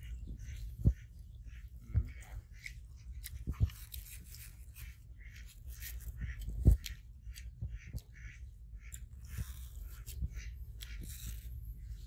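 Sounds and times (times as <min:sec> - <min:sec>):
macaques chewing fruit: 0:00.0 - 0:08.2.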